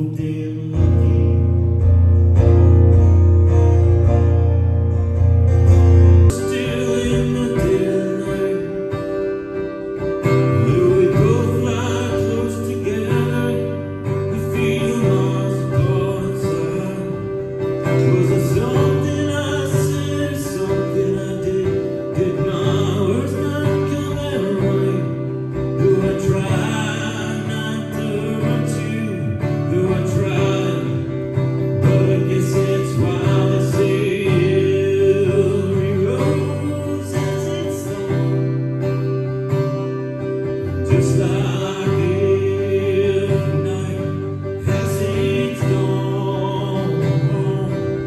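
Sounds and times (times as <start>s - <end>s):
song with singing over guitar: 0.0s - 48.0s.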